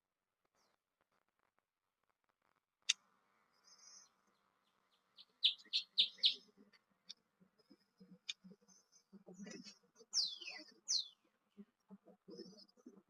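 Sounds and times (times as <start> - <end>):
bird calling and singing: 5.0 - 6.5, 9.6 - 11.2.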